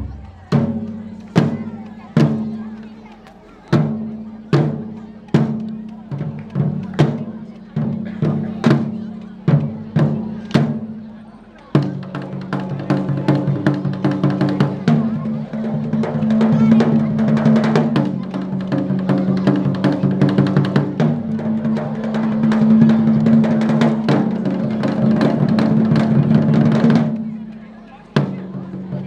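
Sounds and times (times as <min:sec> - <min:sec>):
taiko drums played fast: 0:00.0 - 0:02.6, 0:03.7 - 0:11.0, 0:11.7 - 0:27.4.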